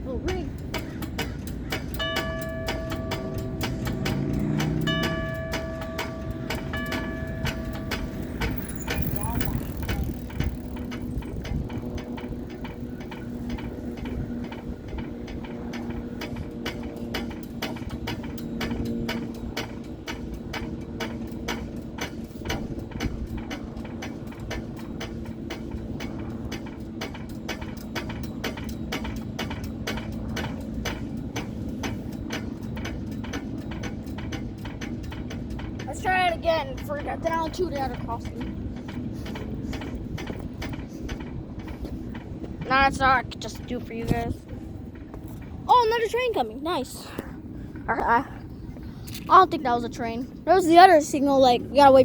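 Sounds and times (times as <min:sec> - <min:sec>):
background traffic rumble: 0:00.0 - 0:52.0
steady low hum: 0:00.0 - 0:52.0
bell striker clicking and tapping: 0:00.3 - 0:35.9.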